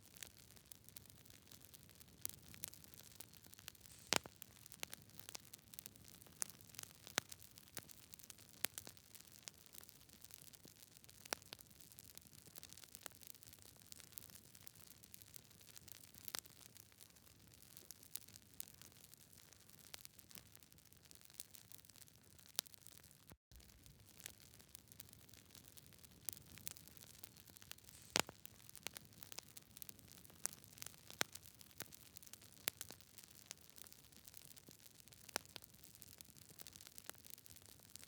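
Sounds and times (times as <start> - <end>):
wood fire crackling: 0.1 - 12.3, 15.1 - 38.0.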